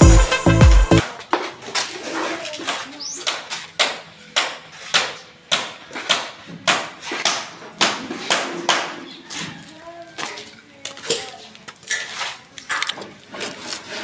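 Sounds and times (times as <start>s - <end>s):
hammer strikes: 3.3s - 9.1s.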